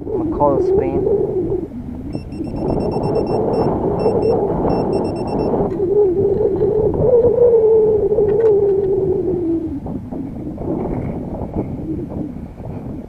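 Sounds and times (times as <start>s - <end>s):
wavering low electronic tone: 1.1s - 6.8s
short high electronic beeps: 2.2s - 5.5s.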